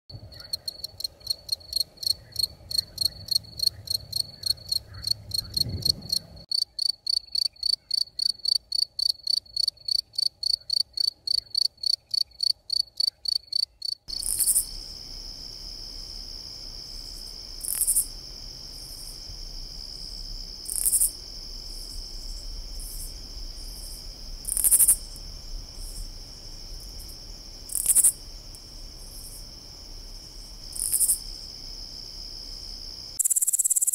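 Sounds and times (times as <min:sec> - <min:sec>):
cricket chirping: 0:00.1 - 0:33.9.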